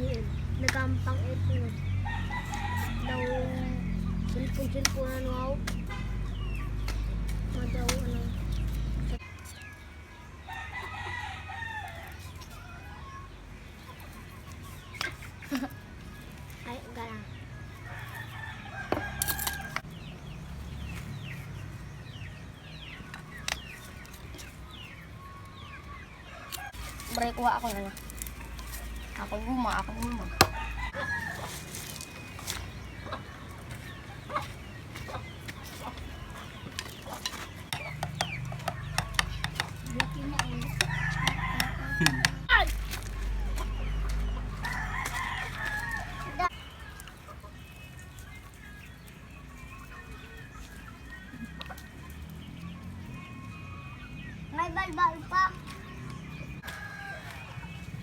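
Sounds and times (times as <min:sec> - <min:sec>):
chickens clucking: 0:00.0 - 0:58.0
rooster crowing: 0:02.0 - 0:03.8, 0:10.5 - 0:13.3, 0:17.8 - 0:19.8, 0:30.2 - 0:31.6, 0:40.4 - 0:42.5, 0:44.5 - 0:46.5, 0:56.6 - 0:57.6
clicks and knocks on bamboo: 0:36.6 - 0:43.1.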